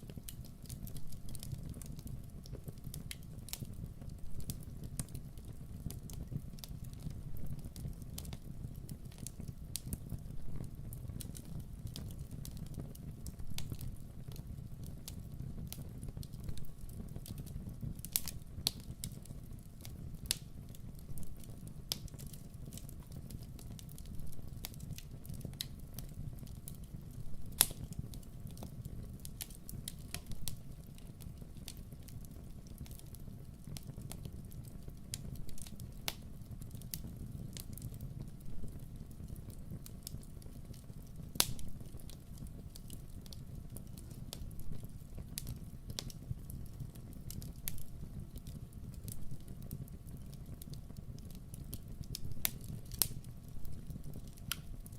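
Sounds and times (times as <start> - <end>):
campfire crackling and popping: 0.0 - 54.9
campfire rumbling: 0.0 - 54.9.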